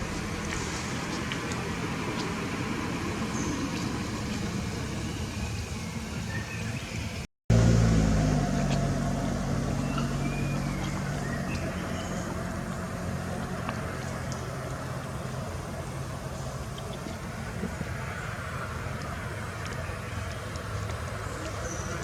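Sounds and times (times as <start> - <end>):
vehicle engine running: 0.0 - 6.0, 7.5 - 16.8.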